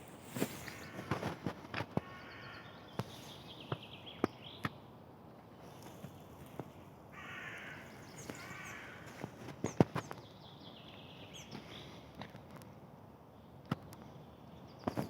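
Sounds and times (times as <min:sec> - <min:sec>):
footsteps on a path: 0:00.0 - 0:02.2, 0:05.6 - 0:10.2
bird calling coarsely: 0:00.3 - 0:03.5, 0:07.1 - 0:09.4.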